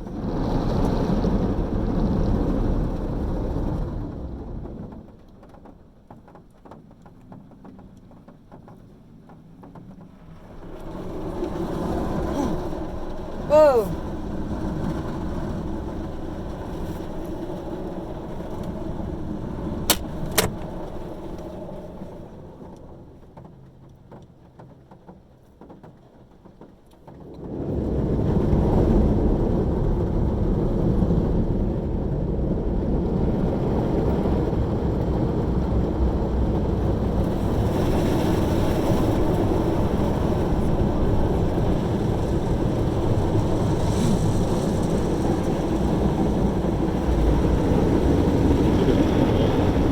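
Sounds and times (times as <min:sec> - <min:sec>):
car wash machinery rushing: 0:35.1 - 0:49.9.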